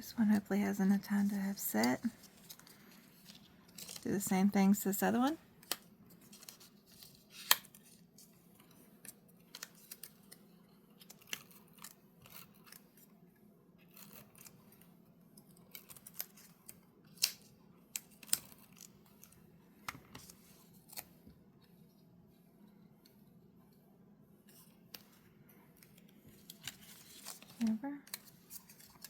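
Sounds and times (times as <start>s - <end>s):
paper being handled: 1.9s - 4.2s, 26.3s - 29.0s.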